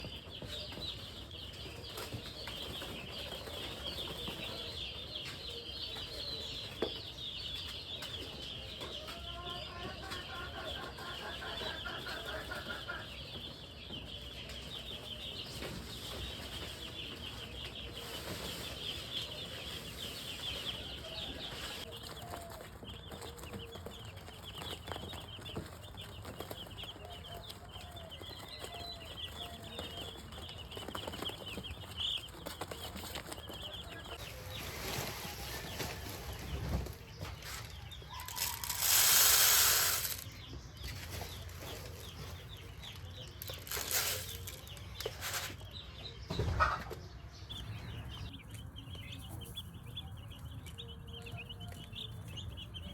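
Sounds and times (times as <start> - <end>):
chicks peeping: 0.0 - 52.9.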